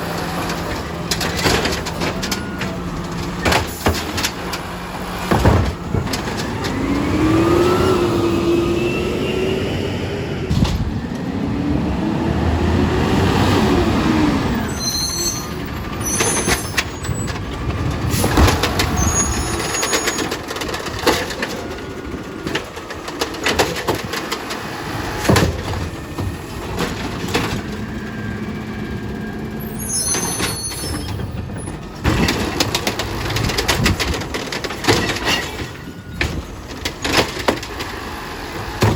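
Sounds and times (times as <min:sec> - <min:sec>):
knocks and bangs: 0:05.2 - 0:06.5
high squeals: 0:14.6 - 0:17.3, 0:18.8 - 0:20.3, 0:29.5 - 0:31.3.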